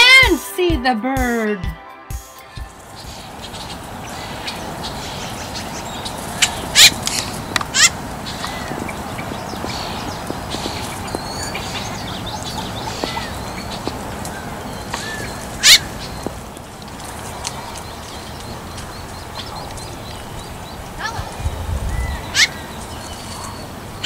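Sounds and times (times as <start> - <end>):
low background noise: 2.6 - 24.0
bird chirping and whistling: 3.0 - 13.8, 21.4 - 23.6.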